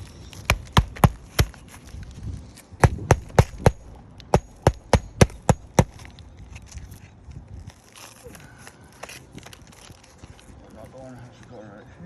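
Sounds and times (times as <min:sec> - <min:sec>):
hammer striking nails: 0:00.5 - 0:01.6, 0:02.8 - 0:06.1.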